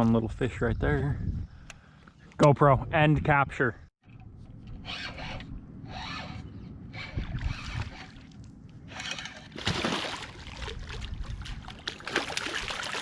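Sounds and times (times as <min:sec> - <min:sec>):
water splashing against boat hull: 0:09.5 - 0:13.0.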